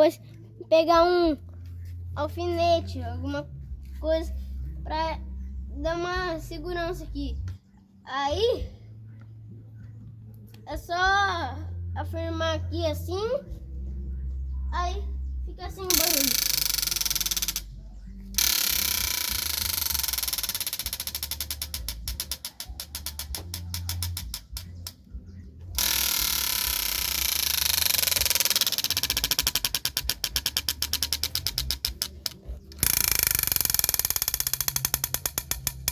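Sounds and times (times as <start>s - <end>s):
plastic strip clattering on spokes: 18.4s - 25.0s, 25.8s - 35.9s.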